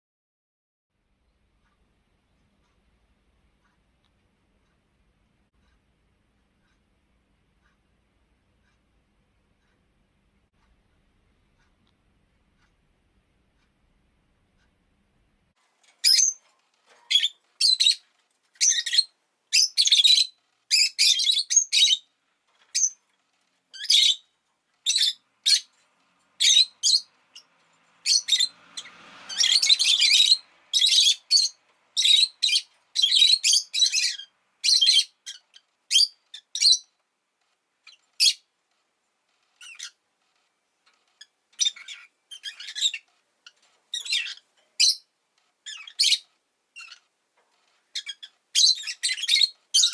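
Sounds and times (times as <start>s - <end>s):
lovebird chirping: 16.0s - 16.4s, 17.0s - 22.1s, 22.7s - 23.0s, 23.7s - 25.7s, 26.4s - 37.0s, 37.8s - 38.5s, 39.6s - 40.0s, 41.2s - 47.1s, 47.9s - 49.9s.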